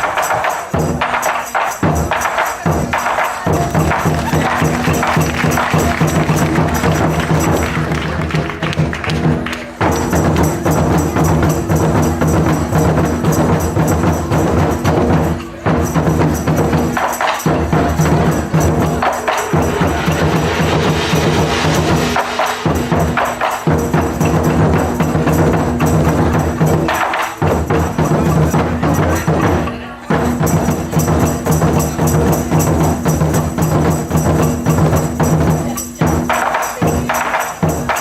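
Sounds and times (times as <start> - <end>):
percussion music: 0.0 - 38.0
sustained pitched tones: 17.8 - 25.1.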